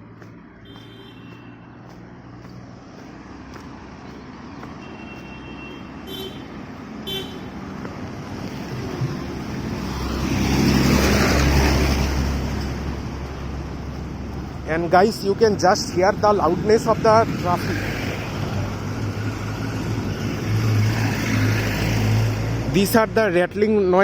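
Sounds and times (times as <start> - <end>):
road traffic: 0.0 - 24.0
heavy vehicle rumbling past: 6.0 - 22.9.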